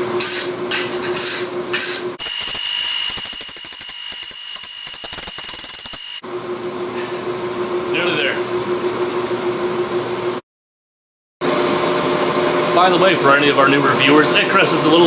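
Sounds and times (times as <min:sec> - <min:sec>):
power tool whining: 0:02.2 - 0:06.2.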